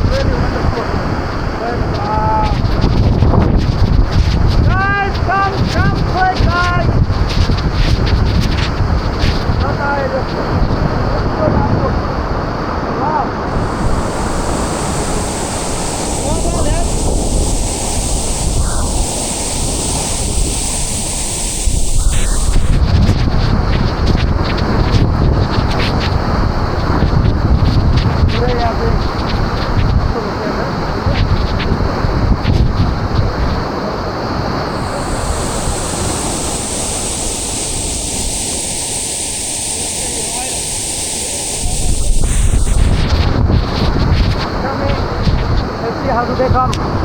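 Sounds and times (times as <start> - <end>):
wind buffeting microphone: 13.5 - 30.2, 34.7 - 45.8.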